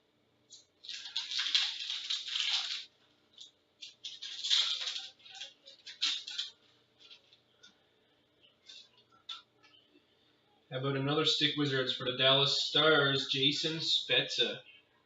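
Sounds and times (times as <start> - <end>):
trading cards rustling and sliding: 0.8 - 2.9, 3.8 - 7.4.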